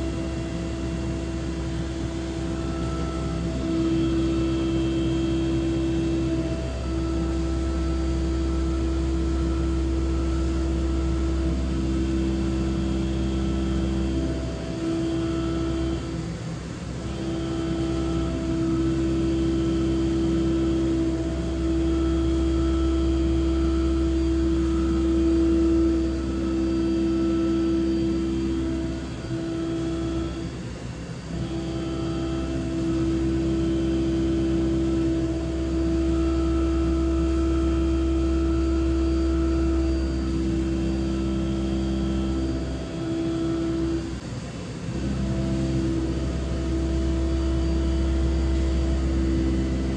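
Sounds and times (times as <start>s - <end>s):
machine low drone: 0.0s - 49.9s
milling cutter singing tone: 0.0s - 49.9s.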